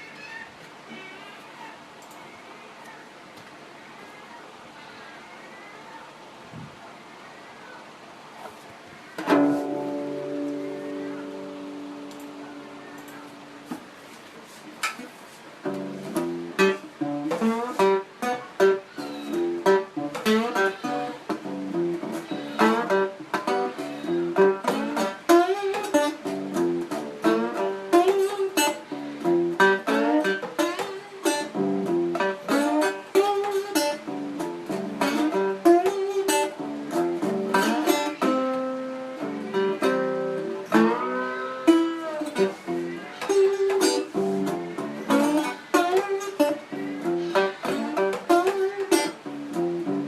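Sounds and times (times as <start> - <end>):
plucked string instrument music: 9.2 - 14.0, 14.9 - 50.0.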